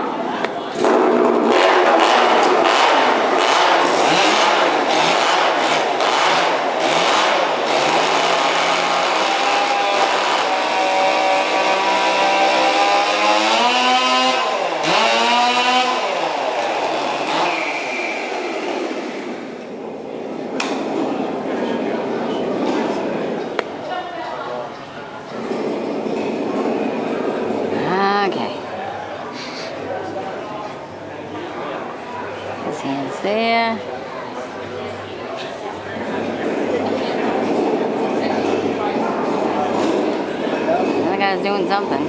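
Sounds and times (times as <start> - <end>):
chainsaw revving: 0.8 - 19.5.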